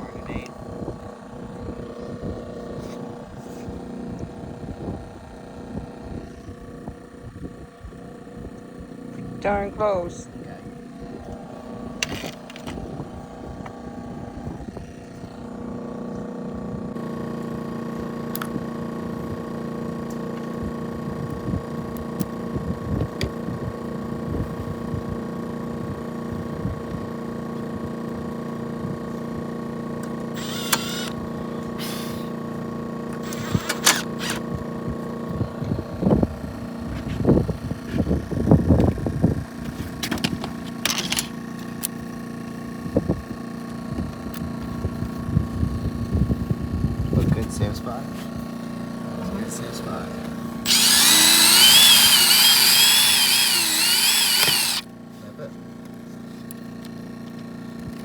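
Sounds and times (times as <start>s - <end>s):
motor running: 0.0s - 19.3s, 28.6s - 45.2s, 47.8s - 55.2s.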